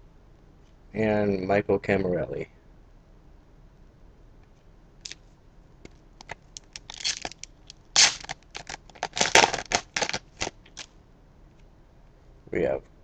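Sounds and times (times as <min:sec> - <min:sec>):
cards clicking and scraping: 0:06.2 - 0:10.9.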